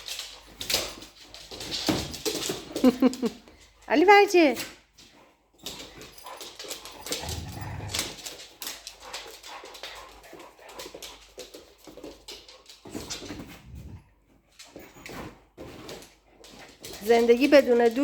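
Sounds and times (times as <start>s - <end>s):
dogs scuffling: 0.0s - 18.0s
low rumble: 7.2s - 8.2s.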